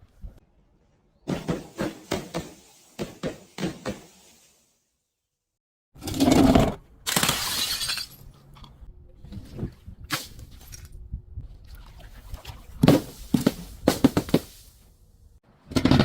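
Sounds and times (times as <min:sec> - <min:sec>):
glass bottle shattering: 0:07.1 - 0:08.3
glass pieces crunching and clinking: 0:07.1 - 0:08.3.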